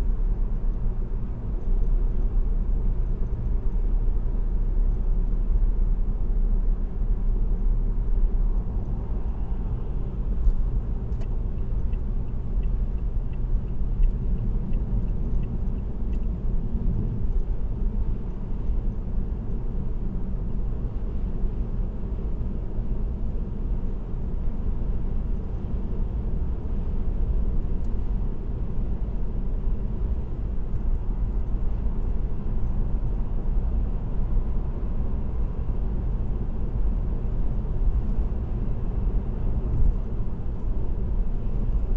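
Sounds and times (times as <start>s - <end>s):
car engine: 0.0s - 41.9s
road and tyre noise: 0.0s - 41.9s
faint light ticks: 10.3s - 16.4s, 27.8s - 28.0s, 30.6s - 31.0s, 39.7s - 40.7s.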